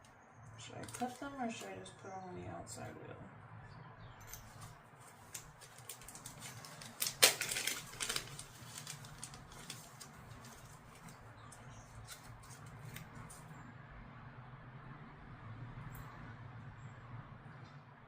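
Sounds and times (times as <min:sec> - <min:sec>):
small parts clattering: 0:04.2 - 0:11.2.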